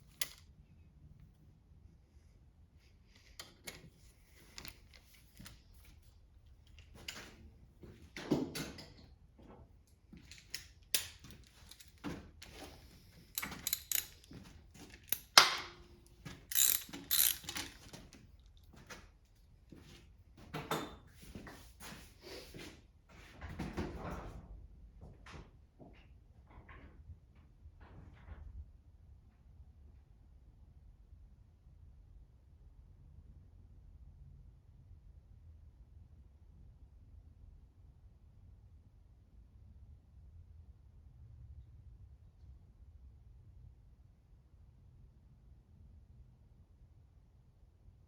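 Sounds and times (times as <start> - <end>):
metallic clinks and knocks: 0.0 - 0.4, 3.3 - 5.6, 10.2 - 18.1
ratchet wrench clicking: 13.4 - 14.3, 15.0 - 15.7, 16.5 - 17.9.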